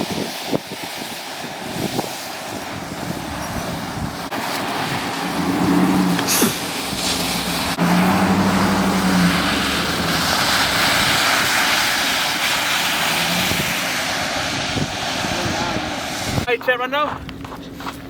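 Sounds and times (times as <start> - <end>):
tyre and road noise: 0.0 - 18.0
car engine hum: 3.2 - 16.5.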